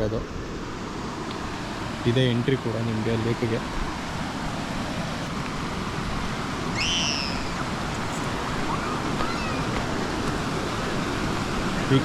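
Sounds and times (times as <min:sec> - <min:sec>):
water rushing: 0:00.0 - 0:12.0
bird call rising and falling: 0:04.9 - 0:12.0
faint chirps: 0:06.7 - 0:10.0.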